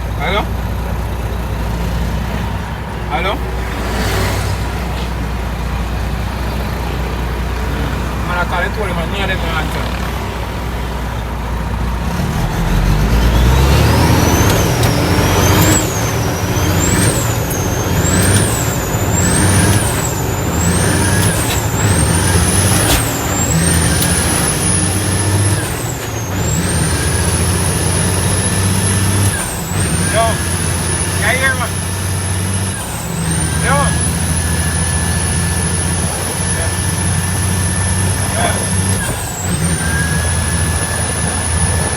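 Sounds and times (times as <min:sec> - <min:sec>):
diesel dump truck engine whining: 0:00.0 - 0:41.9.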